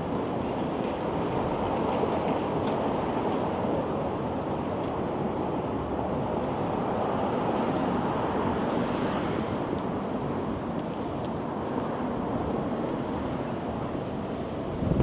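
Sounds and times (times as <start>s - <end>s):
wind buffeting microphone: 14.6s - 15.0s.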